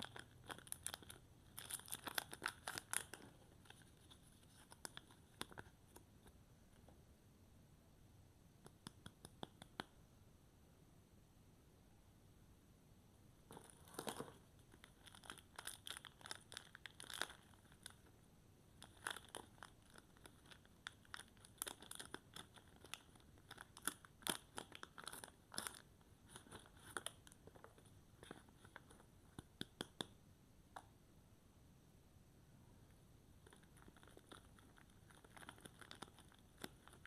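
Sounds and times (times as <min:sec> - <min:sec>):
packaging crinkling and tearing: 0:00.0 - 0:05.6, 0:13.6 - 0:18.1, 0:18.8 - 0:27.6, 0:33.5 - 0:37.0.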